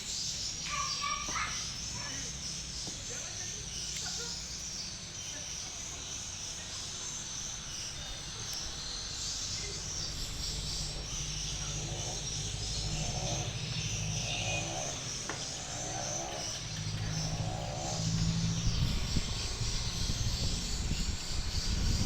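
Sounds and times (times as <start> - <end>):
high-pitched insect drone: 0.0 - 22.0
vehicle engine running: 8.7 - 22.0.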